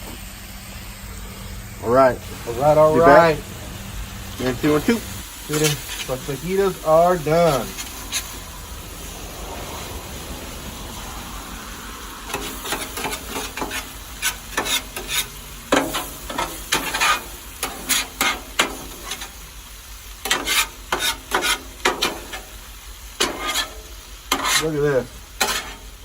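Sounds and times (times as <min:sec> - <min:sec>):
meat sizzling on griddle: 0:00.0 - 0:26.0
metal spatula scraping: 0:04.3 - 0:09.9, 0:12.3 - 0:19.4, 0:20.2 - 0:22.5, 0:23.2 - 0:24.8, 0:25.4 - 0:26.0.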